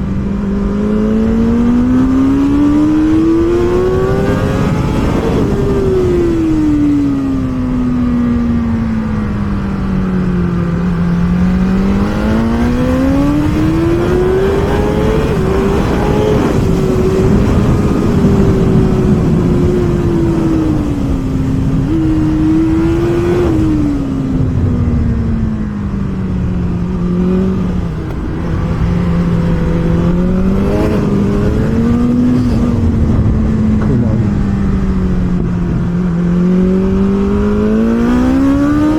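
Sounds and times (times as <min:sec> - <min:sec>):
motorcycle engine at racing revs: 0:00.0 - 0:38.9
steady rushing noise: 0:00.0 - 0:38.9.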